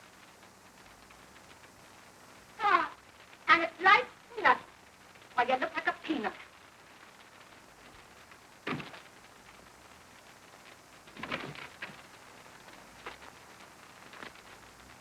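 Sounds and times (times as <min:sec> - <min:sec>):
film soundtrack hiss: 0:00.0 - 0:15.0
thumps and knocks: 0:08.7 - 0:09.0.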